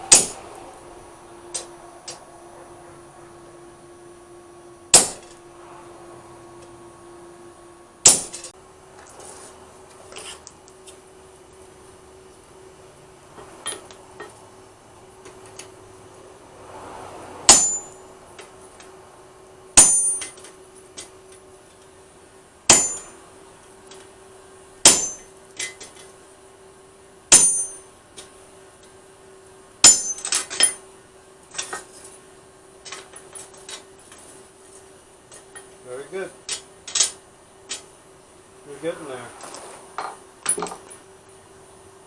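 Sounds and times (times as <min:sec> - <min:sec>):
hammer ringing on steel blade: 0:17.5 - 0:18.1, 0:19.8 - 0:20.4, 0:22.7 - 0:23.2, 0:24.9 - 0:25.3, 0:27.3 - 0:27.9, 0:29.8 - 0:30.8.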